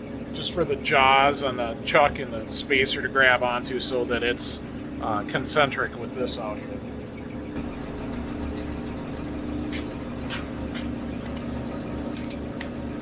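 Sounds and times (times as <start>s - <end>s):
metal lathe motor hum: 6.6s - 12.0s.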